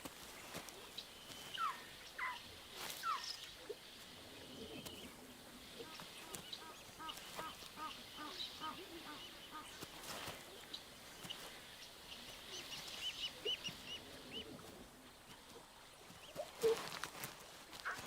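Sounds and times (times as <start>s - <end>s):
bird chirping: 0.9s - 5.1s, 5.8s - 9.8s.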